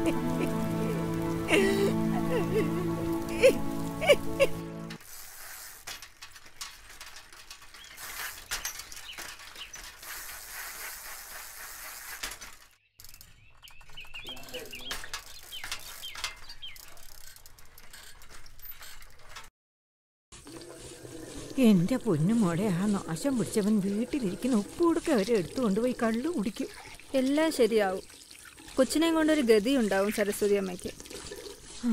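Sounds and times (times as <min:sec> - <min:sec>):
birds chirping: 0:07.7 - 0:09.9, 0:12.7 - 0:17.1.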